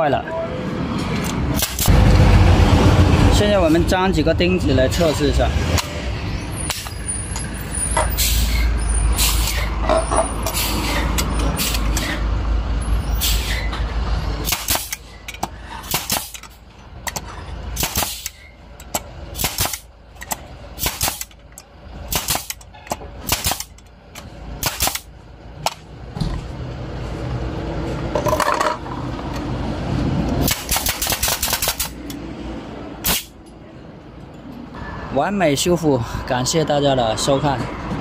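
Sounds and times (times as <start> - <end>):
nail gun firing: 1.6 - 1.9, 14.4 - 15.0, 15.8 - 16.4, 17.8 - 18.4, 19.4 - 19.9, 20.8 - 21.3, 22.1 - 22.6, 23.2 - 23.8, 24.6 - 25.1, 30.4 - 32.0, 33.0 - 33.3.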